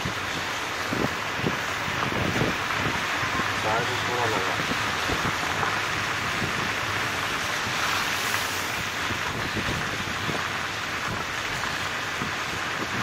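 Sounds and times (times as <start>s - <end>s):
water sloshing and spraying: 6.8s - 10.4s.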